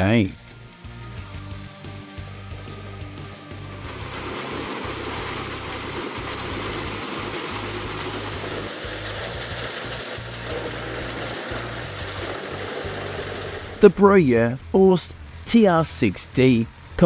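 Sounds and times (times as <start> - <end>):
machine engine hum: 0.0 - 14.0
loud rush of noise: 3.3 - 14.0.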